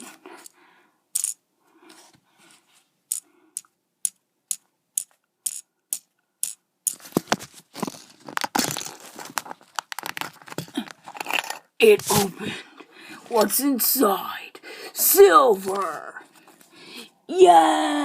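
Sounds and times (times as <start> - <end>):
plastic pieces tapping: 0.0 - 1.4, 3.1 - 12.2
plastic pieces rattling: 4.1 - 12.2.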